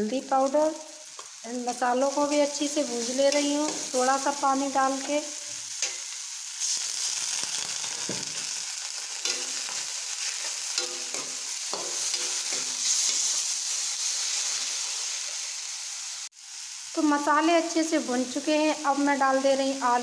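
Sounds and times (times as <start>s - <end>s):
onions sizzling in a pan: 0.0s - 20.0s
metal spatula scraping pan: 9.2s - 13.5s.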